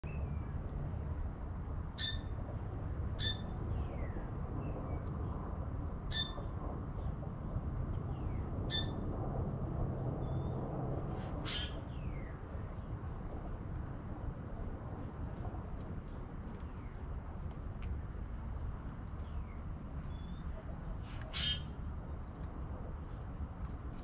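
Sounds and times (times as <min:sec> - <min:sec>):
sharp high bird calls: 0:21.3 - 0:21.7.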